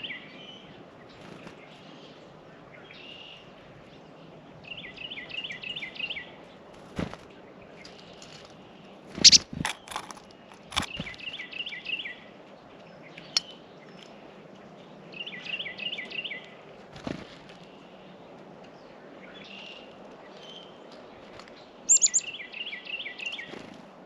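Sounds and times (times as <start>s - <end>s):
songbird chirping: 7.7s - 12.3s, 21.9s - 23.6s.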